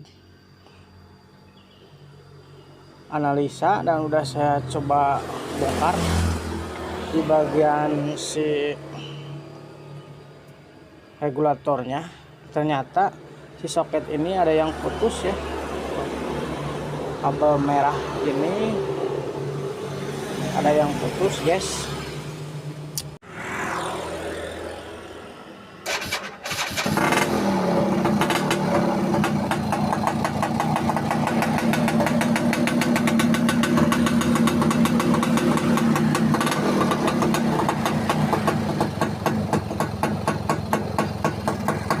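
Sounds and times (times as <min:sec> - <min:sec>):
electric starter cranking: 0:25.8 - 0:42.0
two-stroke engine idling: 0:26.0 - 0:42.0.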